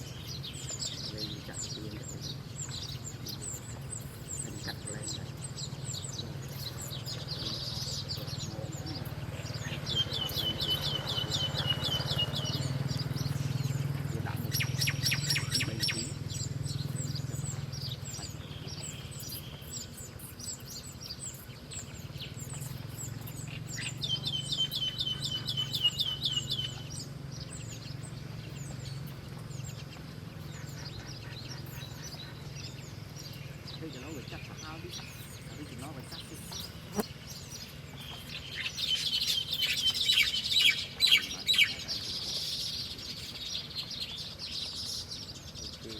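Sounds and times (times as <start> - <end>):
songbirds chirping: 0.0 - 45.9
steady low hum: 0.0 - 45.9.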